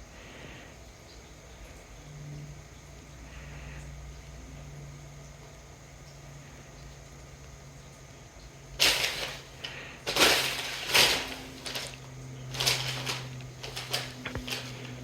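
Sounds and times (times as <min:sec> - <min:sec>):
packaging rustling and scraping: 0:08.8 - 0:15.0.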